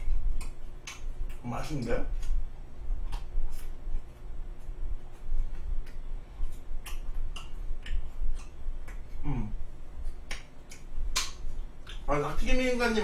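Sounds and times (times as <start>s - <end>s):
wet chewing smacks: 0.0s - 1.4s, 2.1s - 12.1s
person humming mm: 9.2s - 9.6s.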